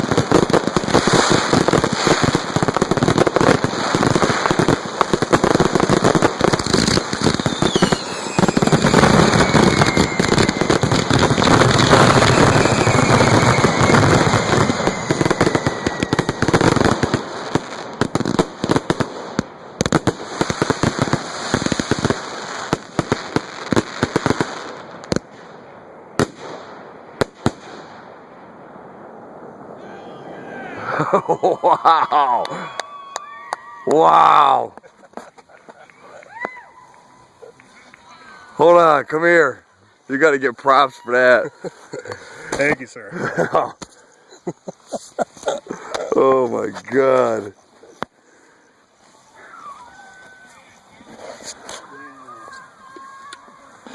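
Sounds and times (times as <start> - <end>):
fireworks whistles: 0.0 - 19.2, 38.5 - 42.8
fireworks bangs and crackling: 0.0 - 30.0, 32.5 - 48.2.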